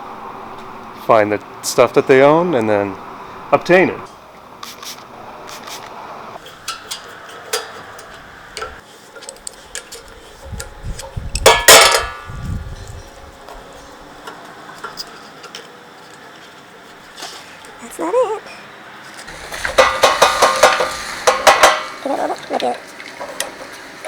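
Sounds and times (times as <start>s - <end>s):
metal tools clicking and clinking: 6.6s - 12.2s
ringing metallic clank: 11.4s - 12.4s.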